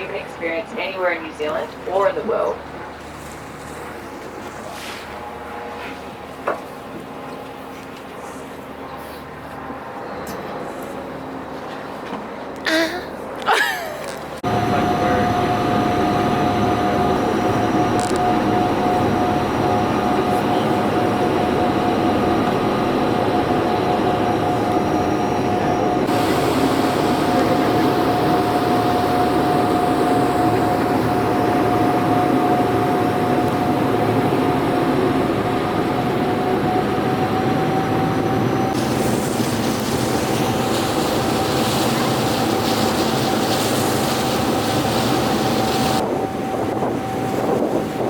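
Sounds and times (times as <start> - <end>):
constant high whine: 0.0 - 48.0
vehicle engine drone: 14.3 - 46.2.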